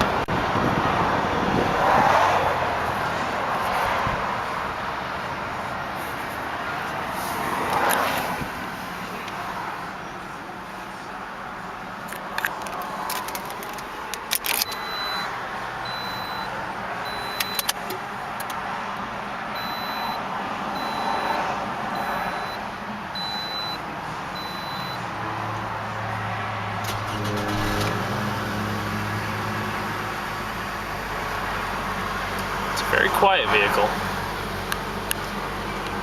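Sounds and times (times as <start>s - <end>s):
car engine starting and idling: 2.5s - 25.2s, 25.8s - 36.0s
car warning chime beeping: 14.6s - 17.8s, 19.5s - 23.8s, 24.4s - 25.0s.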